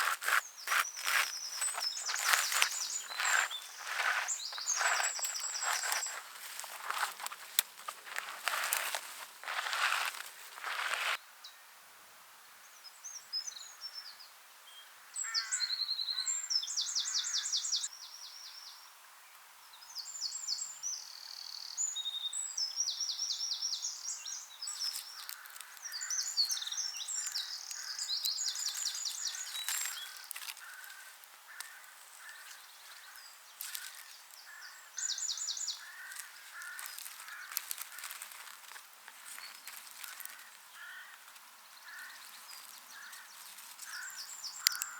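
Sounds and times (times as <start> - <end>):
birds trilling: 0.0 - 11.2
faint clicks: 42.6 - 44.9.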